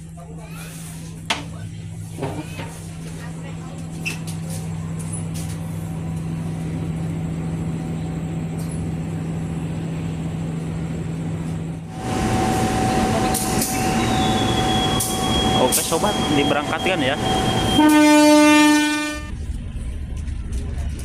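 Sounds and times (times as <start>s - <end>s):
rough train noise with whine: 0.0s - 21.0s
train humming: 0.0s - 21.0s.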